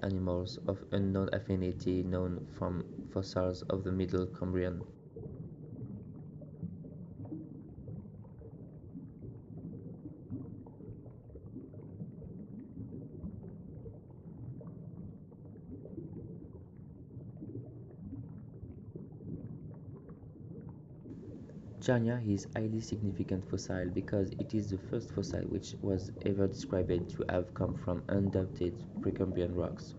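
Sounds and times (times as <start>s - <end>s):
underwater low rumble: 0.0s - 29.9s
faint crackling: 21.1s - 29.9s.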